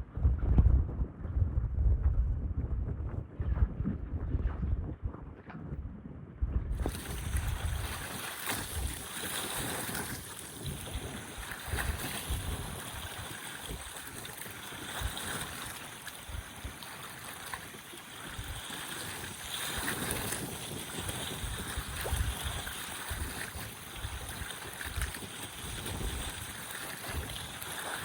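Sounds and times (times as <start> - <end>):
wind rumbling on microphone: 0.0 - 28.0
lake water splashing on shore: 6.8 - 28.0.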